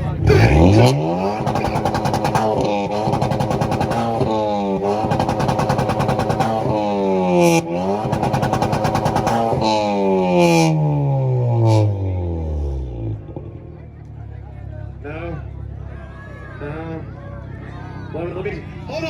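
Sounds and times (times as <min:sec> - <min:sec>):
car engine revving: 0:00.0 - 0:13.8
exhaust popping stutter: 0:00.0 - 0:13.9.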